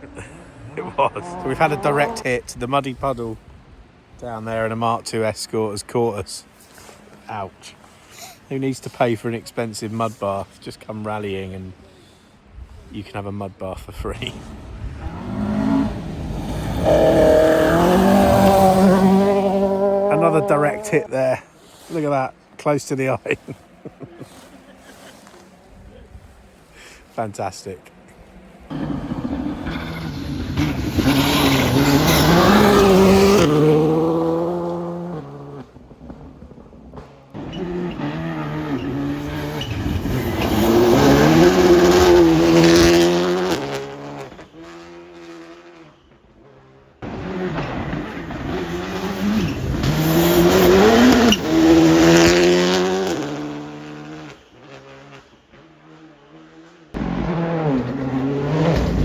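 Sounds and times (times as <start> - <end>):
rally cars revving past: 0.0 - 2.4, 14.2 - 21.9, 28.7 - 59.0.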